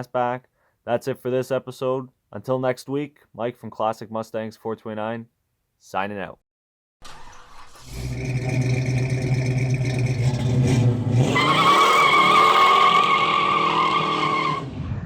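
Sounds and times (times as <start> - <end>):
car engine revving: 7.1 - 15.0
tires squealing: 7.7 - 14.9.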